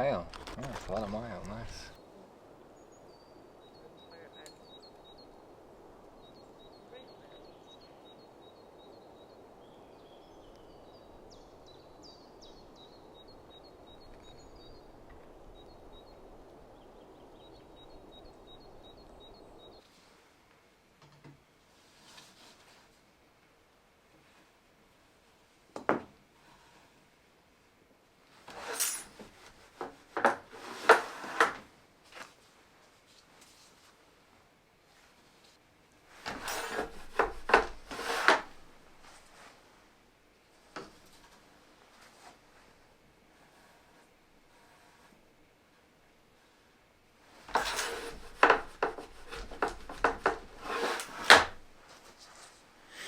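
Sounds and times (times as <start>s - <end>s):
loom rattling sliding scrape: 28.5s - 31.6s, 36.2s - 39.4s, 47.4s - 52.5s
wooden knocks and rubs: 36.2s - 39.4s, 47.5s - 51.8s.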